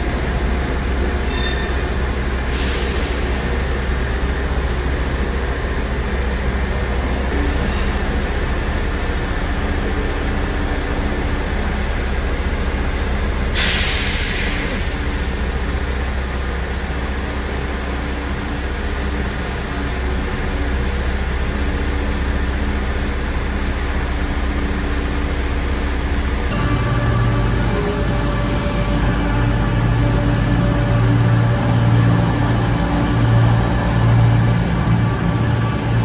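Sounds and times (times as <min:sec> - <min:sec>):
train engine rumbling: 0:00.0 - 0:36.0
sharp hiss of air: 0:13.6 - 0:15.1.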